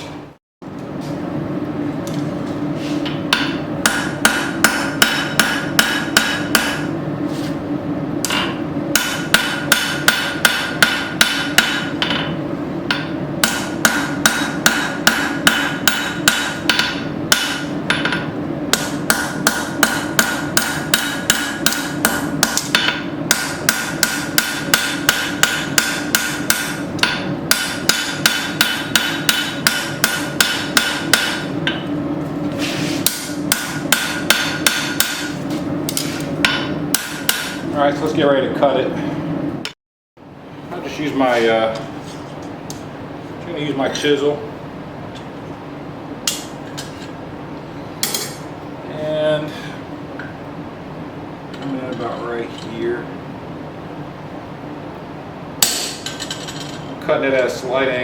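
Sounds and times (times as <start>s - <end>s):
hammer striking steel on anvil: 3.0s - 6.9s, 8.2s - 31.9s, 33.0s - 37.7s, 46.3s - 47.0s, 48.0s - 48.5s, 55.6s - 56.8s.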